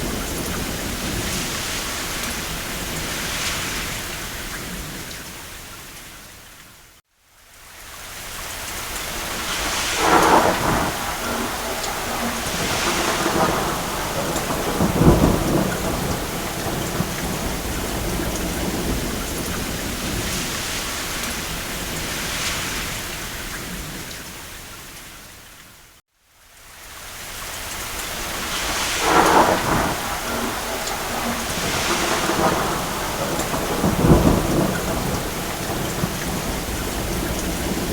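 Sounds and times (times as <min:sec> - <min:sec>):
thunder rolling: 0:00.0 - 0:05.1, 0:09.1 - 0:24.1, 0:28.0 - 0:37.9
steady rain: 0:00.0 - 0:37.9.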